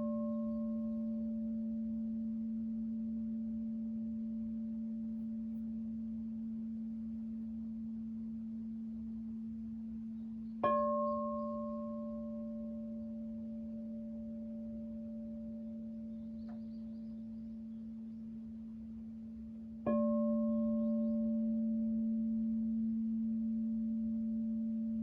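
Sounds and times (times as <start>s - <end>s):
higher singing bowl ringing: 0.0s - 2.1s, 19.9s - 22.5s
singing bowl low hum: 0.0s - 25.0s.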